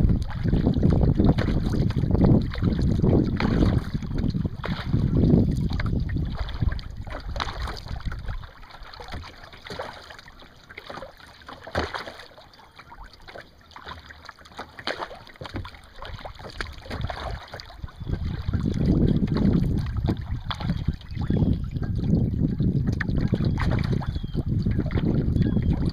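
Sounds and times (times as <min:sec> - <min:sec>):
wind buffeting microphone: 0:00.0 - 0:09.2, 0:16.1 - 0:25.9
paddle splashing in water: 0:00.0 - 0:25.9.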